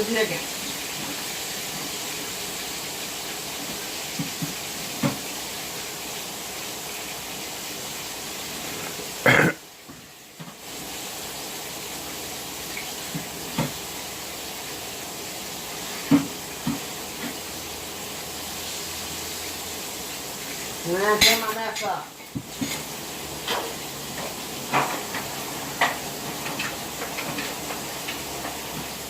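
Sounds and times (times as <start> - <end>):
kitchen knocks and clatters: 3.6 - 5.3, 16.0 - 17.4, 21.2 - 29.0.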